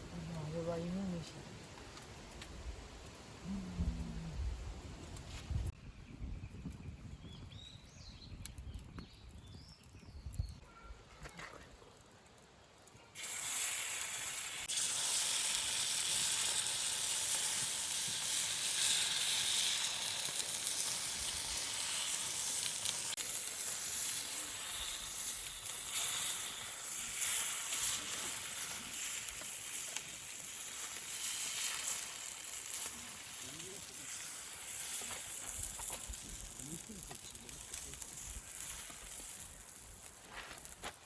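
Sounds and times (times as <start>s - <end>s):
batter sizzling in a hot pan: 13.0s - 41.0s.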